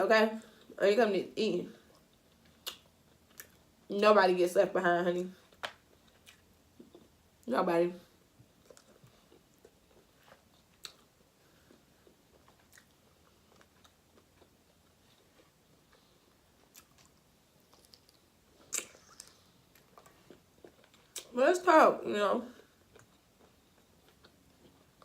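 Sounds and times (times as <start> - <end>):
person chewing: 1.9 - 3.7, 5.5 - 7.2, 8.4 - 21.3, 22.7 - 25.0.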